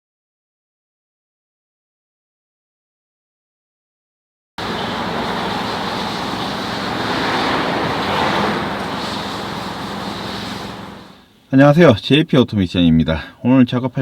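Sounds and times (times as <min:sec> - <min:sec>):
car engine hum: 0:04.6 - 0:11.2
road and wind noise: 0:04.6 - 0:11.2.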